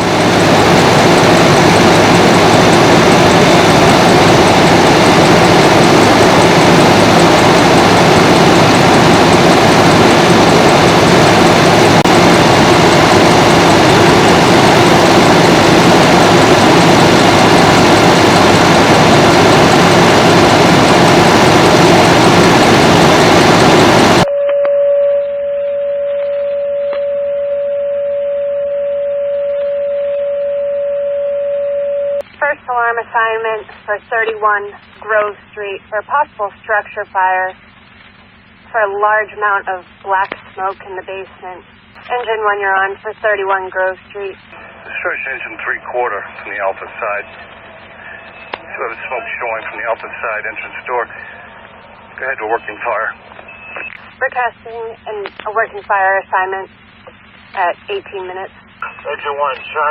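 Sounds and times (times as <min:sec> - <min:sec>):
loud vehicle engine: 0:00.0 - 0:24.3
radio alert tone: 0:38.7 - 0:59.9.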